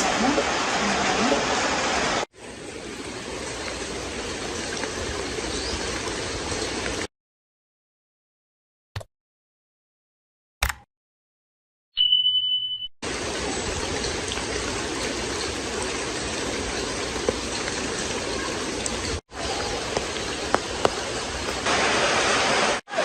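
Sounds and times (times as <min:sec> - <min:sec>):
short clicks: 0:10.6 - 0:10.9
brief high beep: 0:12.0 - 0:12.9.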